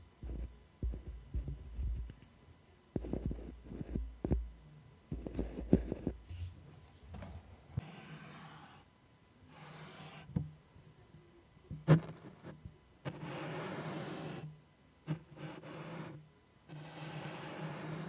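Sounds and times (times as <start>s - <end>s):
taps with low thuds: 0.2s - 2.2s, 3.8s - 6.0s.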